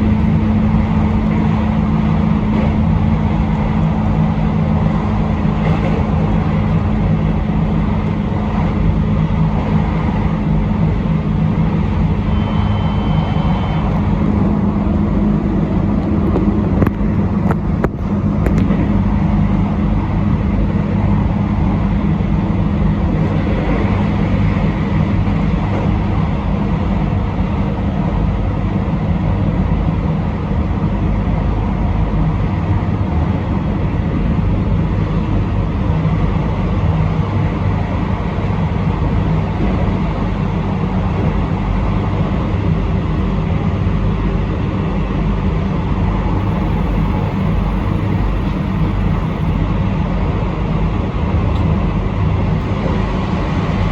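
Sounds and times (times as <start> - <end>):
train running on rails: 0.0 - 53.9
short high tone: 12.2 - 14.2, 46.4 - 49.6.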